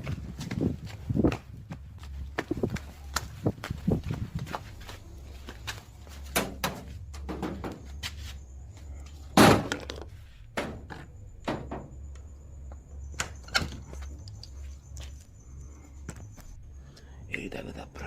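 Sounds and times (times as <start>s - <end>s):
steady low hum: 0.0s - 18.0s
knocks and thumps: 6.3s - 8.0s, 9.4s - 12.0s.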